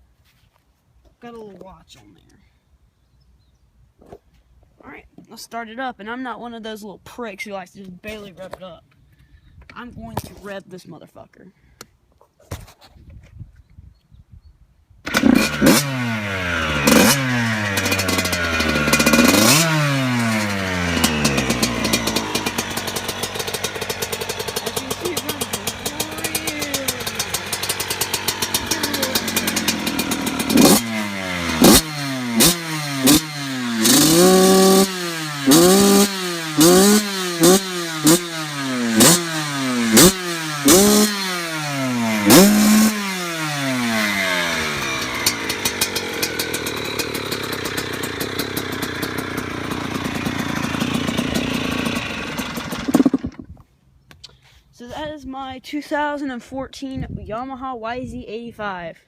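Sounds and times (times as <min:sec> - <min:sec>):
two-stroke motorbike engine revving: 0:15.1 - 0:53.5.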